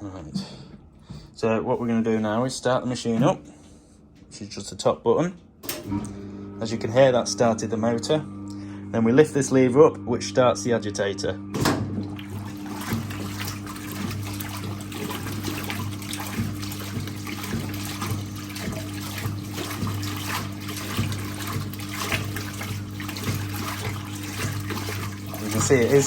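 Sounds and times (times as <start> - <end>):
washing machine motor humming: 0.0 - 26.0
water sloshing and splashing: 11.6 - 26.0.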